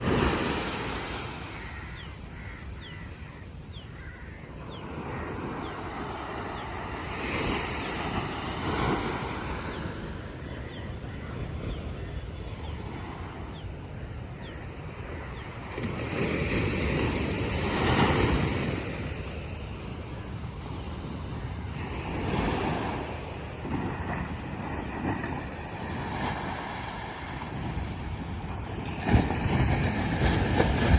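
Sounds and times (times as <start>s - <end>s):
ocean surf breaking on beach: 0.0s - 3.4s, 4.0s - 14.1s, 15.6s - 30.9s.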